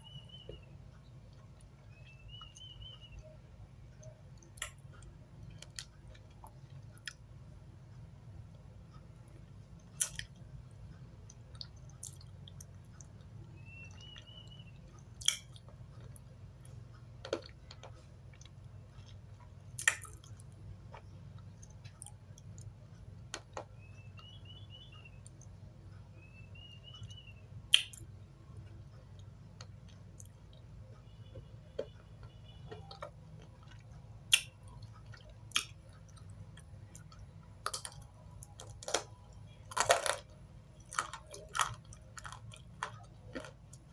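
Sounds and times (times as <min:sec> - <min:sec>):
steady low hum: 0:00.0 - 0:43.9
crunchy chewing of dry clay: 0:08.9 - 0:25.6, 0:26.2 - 0:43.9.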